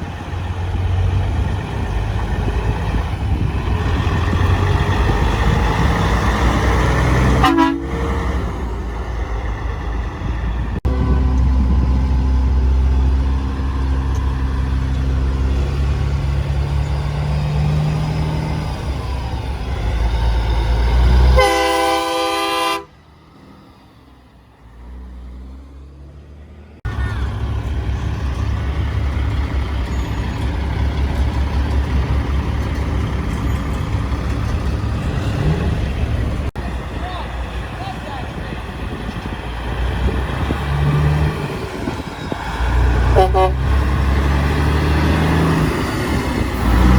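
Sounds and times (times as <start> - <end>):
diesel truck engines rumbling: 0.0 - 46.9
truck air horn blast: 7.2 - 8.4, 10.9 - 11.5, 21.2 - 23.0, 43.1 - 43.8.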